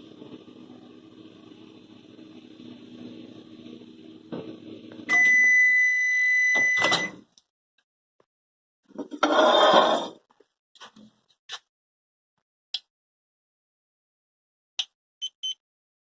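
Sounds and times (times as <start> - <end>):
microwave oven humming: 0.0 - 7.2
long steady beep: 5.1 - 7.2.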